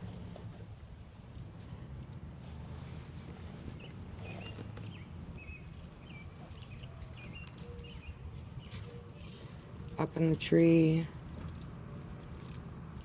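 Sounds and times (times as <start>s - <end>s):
low outdoor rumble: 0.0s - 13.0s
small bird chirping: 3.4s - 9.5s.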